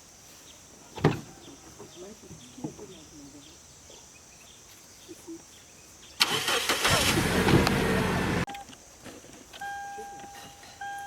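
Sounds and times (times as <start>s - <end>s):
car engine cranking on starter: 6.2s - 8.5s.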